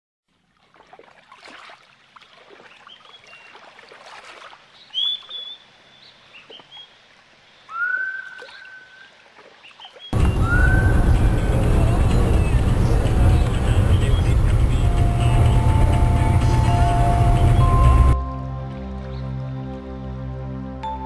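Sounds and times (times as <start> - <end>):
birds whistling and chirping: 2.7 - 3.6, 4.8 - 6.9, 7.7 - 11.6, 13.3 - 14.4.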